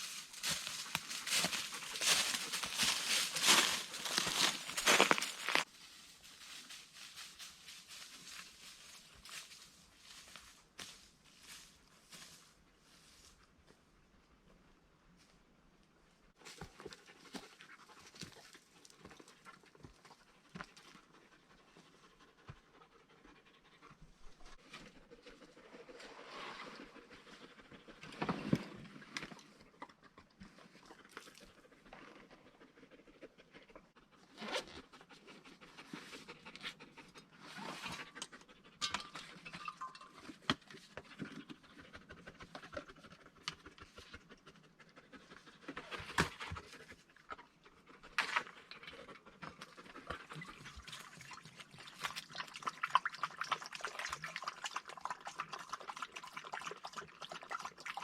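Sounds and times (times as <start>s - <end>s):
dog panting: 16.7s - 24.4s, 34.9s - 38.9s, 41.0s - 48.1s.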